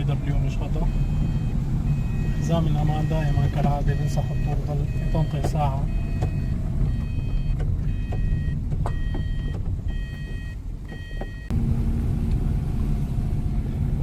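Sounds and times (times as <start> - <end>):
car engine and road rumble: 0.0 - 14.0
seat-belt warning chime: 0.4 - 11.5.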